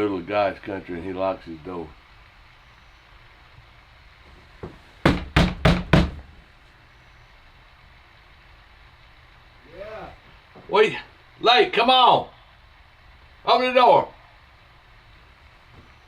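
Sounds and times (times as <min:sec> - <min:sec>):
fist knocking on door: 0:04.6 - 0:06.4.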